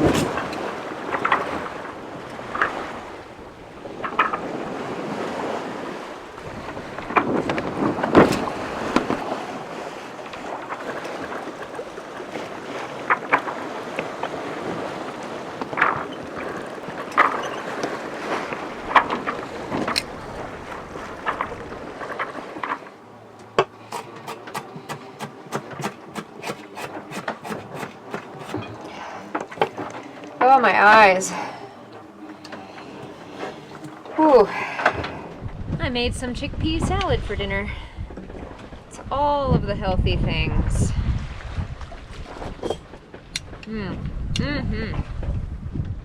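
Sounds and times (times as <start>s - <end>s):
boat knocks and creaks: 0.0s - 37.4s, 38.0s - 39.4s, 41.6s - 44.1s
wind and sea rushing: 0.0s - 46.0s
rapid sharp knocks: 24.0s - 28.6s.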